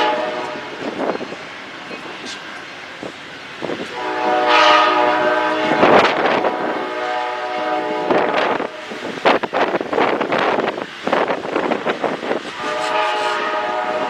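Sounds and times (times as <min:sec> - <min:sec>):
locomotive air horn blasts: 0:00.0 - 0:00.9, 0:03.9 - 0:09.0, 0:12.5 - 0:14.0.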